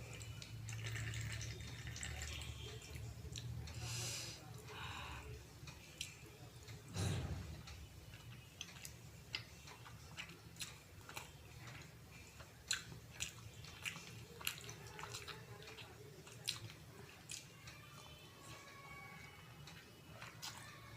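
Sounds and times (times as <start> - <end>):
wet chewing and mouth smacking: 7.8 - 18.1, 19.6 - 20.9.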